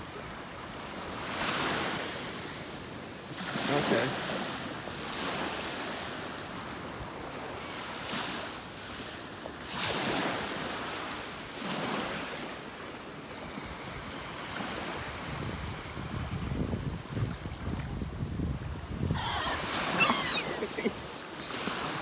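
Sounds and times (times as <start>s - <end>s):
wind buffeting microphone: 14.8s - 22.0s
ocean surf breaking: 19.1s - 22.0s.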